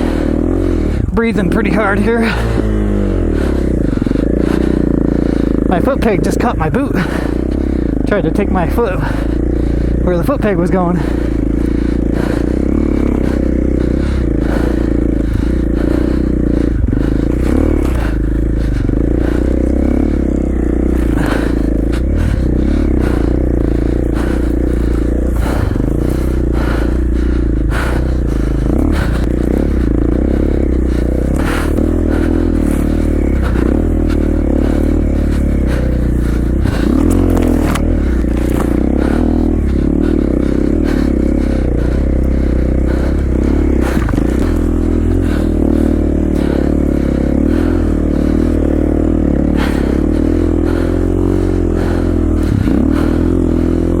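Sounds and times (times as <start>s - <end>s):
dirt bike engine running: 0.0s - 54.0s
knocks and scrapes in snow: 36.7s - 39.4s.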